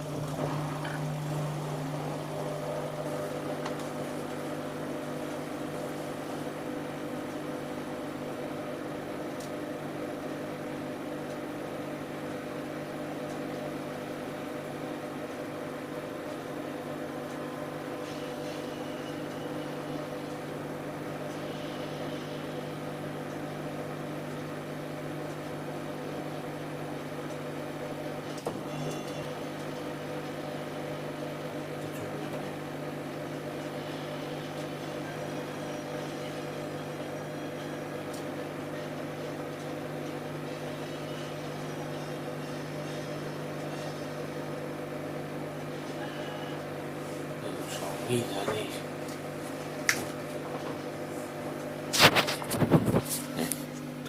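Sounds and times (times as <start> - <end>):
washing machine motor hum: 0.0 - 54.0.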